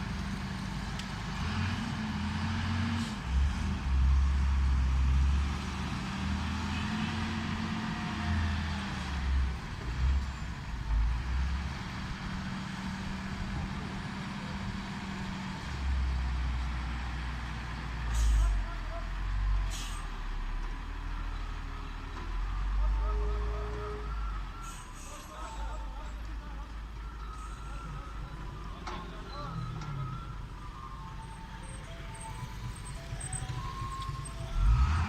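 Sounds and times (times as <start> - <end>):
truck diesel engine running: 0.0 - 35.0.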